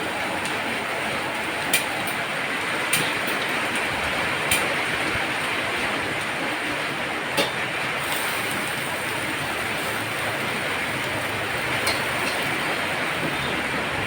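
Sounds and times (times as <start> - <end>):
heavy rain hissing: 3.5 - 14.0.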